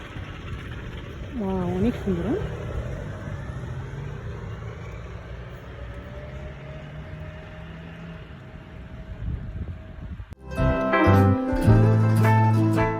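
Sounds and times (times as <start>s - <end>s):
car engine humming: 0.0s - 10.4s.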